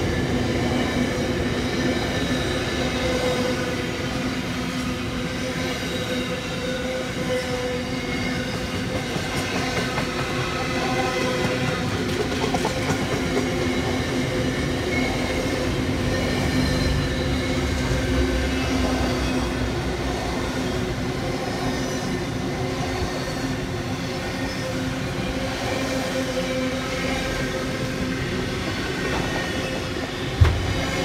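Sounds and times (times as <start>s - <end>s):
steel wheels rumbling on rail: 0.0s - 31.0s.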